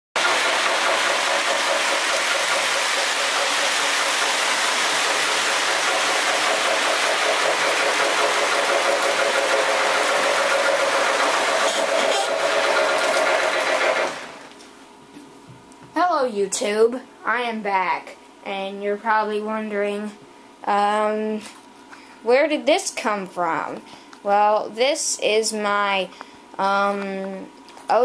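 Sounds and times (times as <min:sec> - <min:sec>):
model train motor whir: 0:07.8 - 0:14.4.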